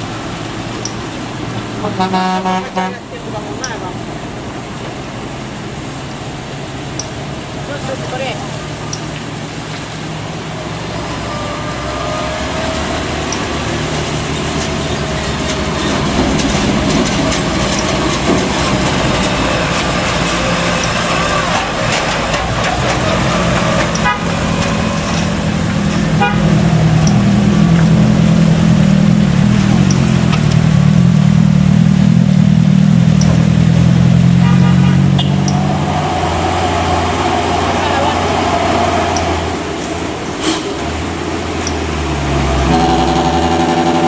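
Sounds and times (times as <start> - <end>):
truck diesel engine pulling hard: 0.0 - 44.0
truck horn toots: 1.8 - 3.1, 11.0 - 13.8, 22.8 - 27.6, 34.2 - 35.7, 42.6 - 44.0.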